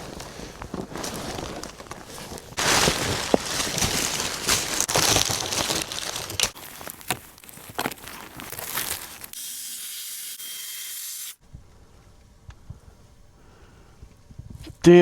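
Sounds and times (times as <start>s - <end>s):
plastic tarp crinkling: 0.0s - 9.4s.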